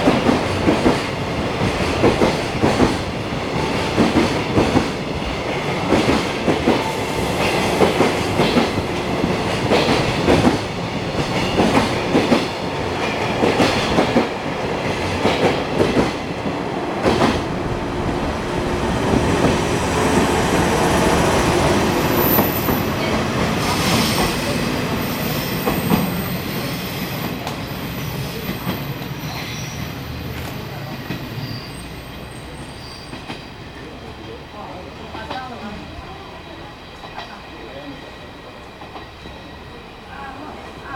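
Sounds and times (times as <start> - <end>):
freight train wheels clickety-clack: 0.0 - 40.9
high wheel squeal: 31.4 - 33.3.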